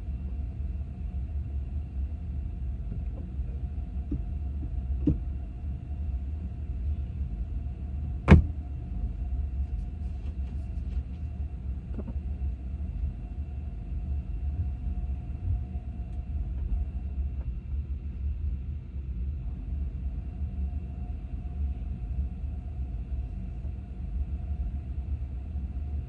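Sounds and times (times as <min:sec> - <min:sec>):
car rumbling on the move: 0:00.0 - 0:17.7
faint steady hums: 0:00.0 - 0:26.0.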